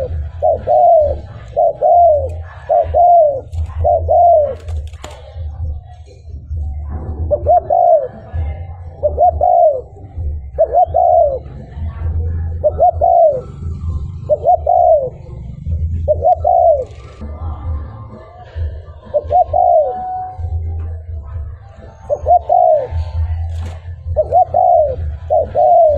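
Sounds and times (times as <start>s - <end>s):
dove cooing: 0.0s - 17.2s, 18.6s - 25.9s.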